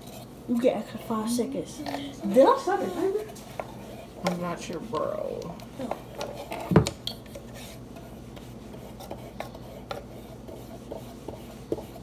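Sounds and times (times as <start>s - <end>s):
paintbrush rubbing on wood: 7.5s - 12.0s.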